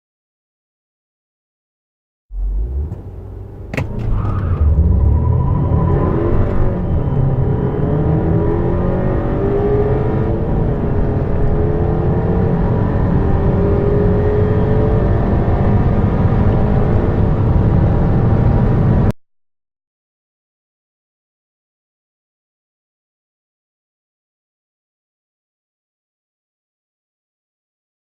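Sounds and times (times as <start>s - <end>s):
car engine accelerating hard: 2.3s - 19.1s.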